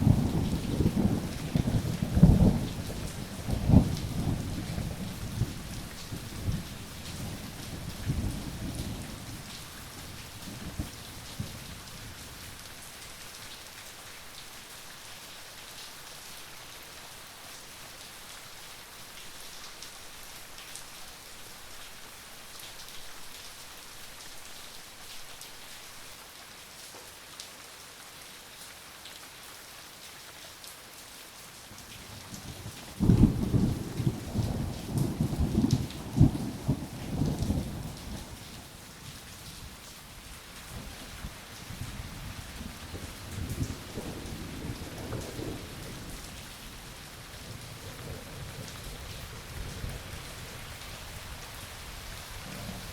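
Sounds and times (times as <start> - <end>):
thunder rumbling: 0.0 - 9.4.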